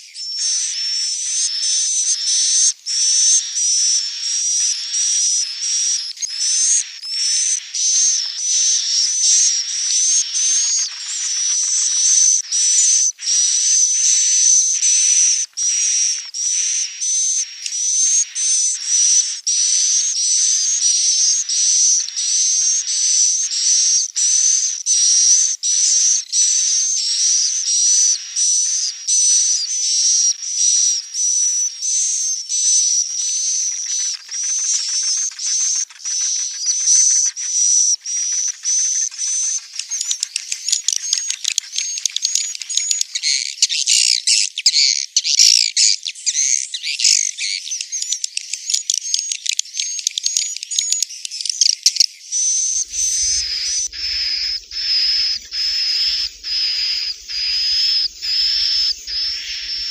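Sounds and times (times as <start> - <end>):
swiftlet twittering chorus: 23.8 - 43.6, 52.6 - 59.9
thin steady whistle: 52.7 - 59.9.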